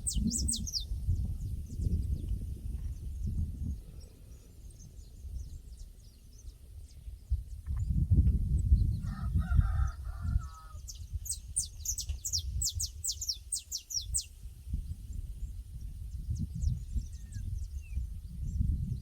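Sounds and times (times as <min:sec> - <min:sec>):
small bird chirping: 0:00.0 - 0:03.3, 0:10.9 - 0:14.4
rooster crowing: 0:09.0 - 0:10.8.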